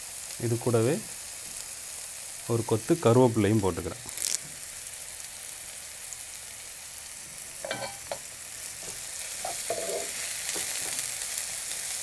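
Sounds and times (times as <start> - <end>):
onions sizzling in hot oil: 0.0 - 12.0
wooden spatula scraping a pan: 9.4 - 11.0.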